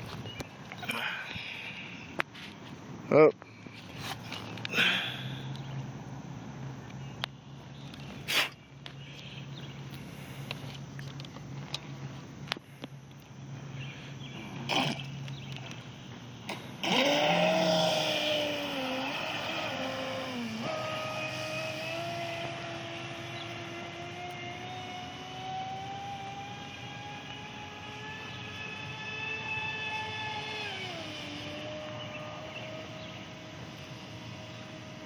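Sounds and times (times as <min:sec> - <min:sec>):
electric motor whining: 0:13.4 - 0:35.0.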